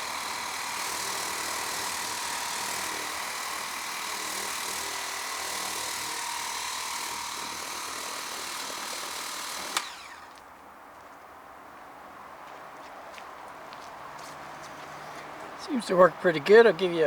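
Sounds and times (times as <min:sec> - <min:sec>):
pressure washer motor whine: 0:00.0 - 0:10.4.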